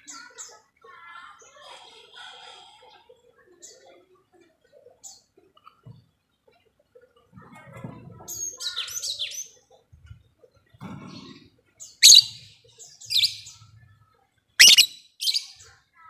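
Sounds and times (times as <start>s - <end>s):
lovebird chattering: 12.0s - 12.4s, 14.6s - 15.6s
lovebird shrill calls: 12.0s - 12.4s, 14.6s - 15.6s.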